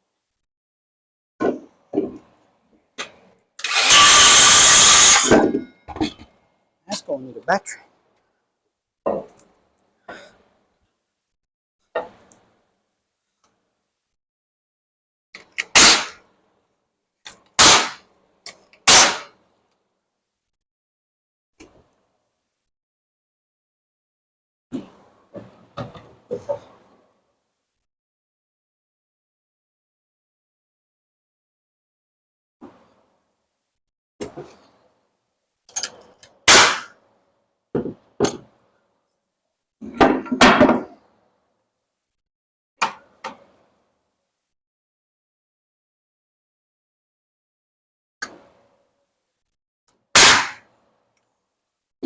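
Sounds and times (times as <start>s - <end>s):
nail gun bangs: 15.7s - 16.2s, 17.6s - 18.0s, 18.9s - 19.3s, 36.5s - 36.9s, 50.2s - 50.6s
knocks on wooden framing: 37.8s - 38.5s.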